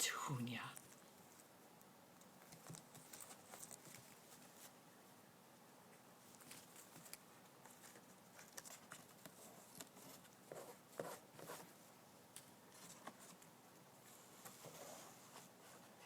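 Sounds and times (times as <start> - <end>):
cockatoo chewing cardboard: 0.8 - 4.8, 6.2 - 11.8.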